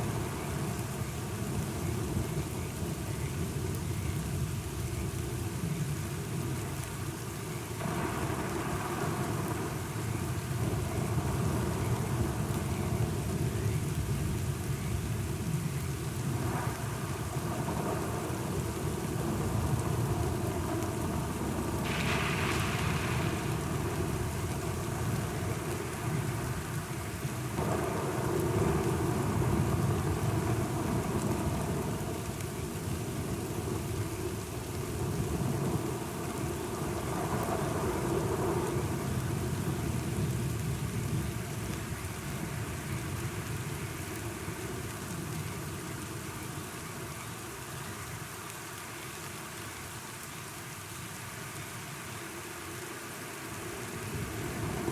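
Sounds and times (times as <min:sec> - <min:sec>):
steady rain: 0:00.0 - 0:54.9
rolling thunder: 0:16.4 - 0:26.7.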